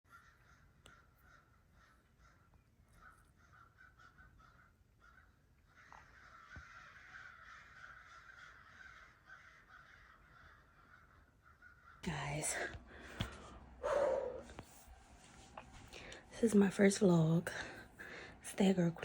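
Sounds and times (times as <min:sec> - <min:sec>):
birds chattering: 0:00.1 - 0:14.6.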